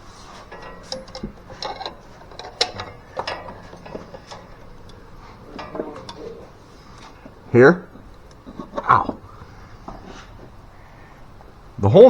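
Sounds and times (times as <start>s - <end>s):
metallic clicks and clinks: 0.3s - 8.5s.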